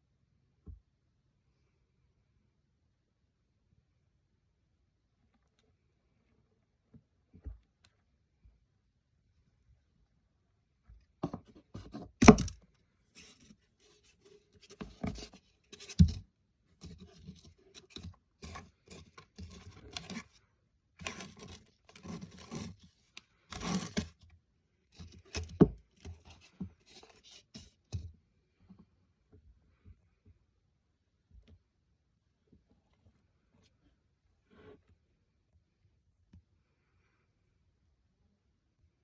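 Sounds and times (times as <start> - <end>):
scraping and rustling: 13.2 - 16.2, 16.8 - 20.4, 21.0 - 24.2, 24.9 - 28.0.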